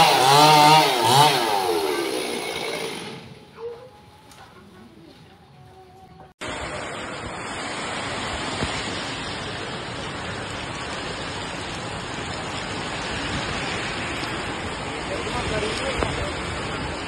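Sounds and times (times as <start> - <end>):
heavy rain in wind: 6.4 - 17.0.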